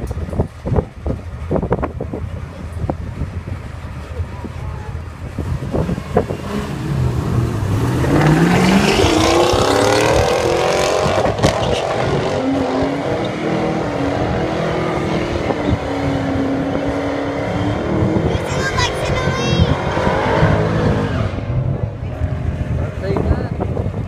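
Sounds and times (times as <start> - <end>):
car engine revving through gears: 5.4 - 18.4, 19.0 - 22.8.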